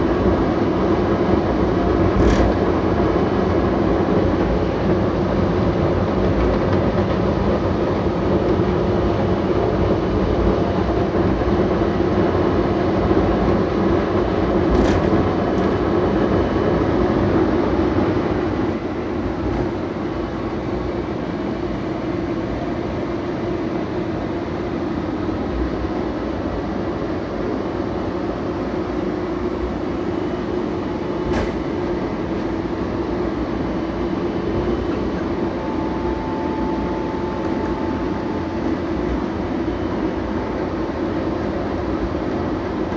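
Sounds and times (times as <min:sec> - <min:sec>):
train car rumbling ride noise: 0:00.0 - 0:42.9.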